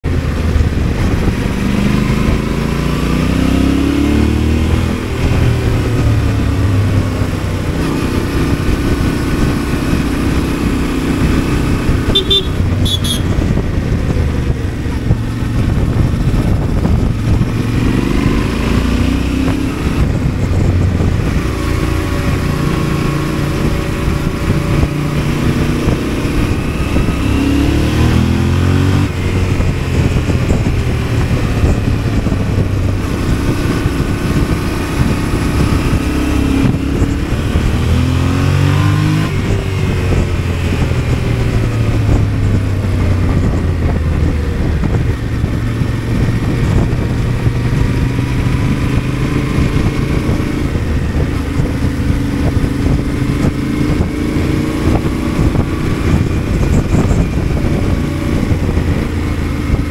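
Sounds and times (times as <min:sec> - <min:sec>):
motorcycle engine revving: 0:00.0 - 0:59.9
wind and road noise: 0:00.0 - 0:59.9
horn beeps: 0:12.0 - 0:13.5.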